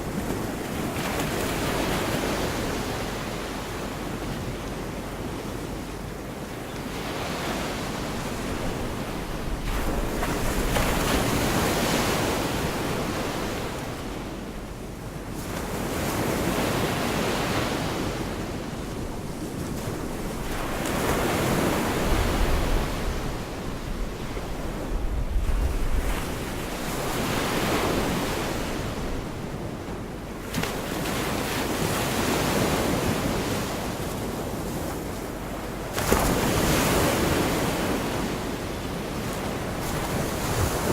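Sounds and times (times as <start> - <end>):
waves breaking on beach: 0.0 - 40.9
wind buffeting microphone: 7.4 - 15.1, 18.1 - 30.8.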